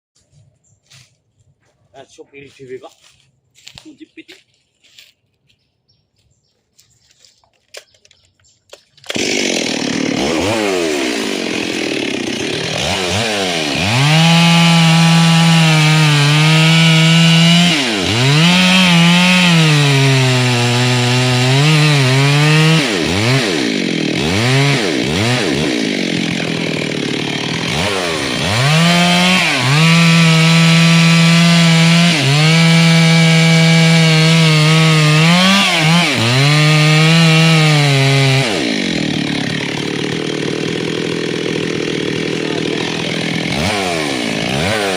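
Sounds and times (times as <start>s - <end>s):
chainsaw cutting into tree: 9.0s - 44.9s.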